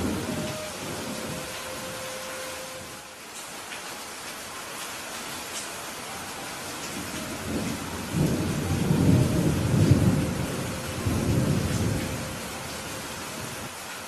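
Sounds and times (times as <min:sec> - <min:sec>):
thunder rumbling: 0:00.0 - 0:03.0, 0:06.8 - 0:13.7
steady rain hiss: 0:00.0 - 0:14.0.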